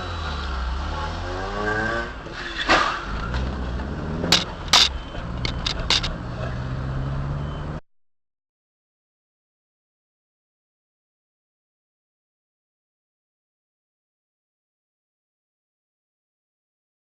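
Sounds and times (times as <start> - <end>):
car engine humming: 3.0 - 7.6
quick clicks: 4.3 - 6.1
sharp knocks and bangs: 4.3 - 6.1.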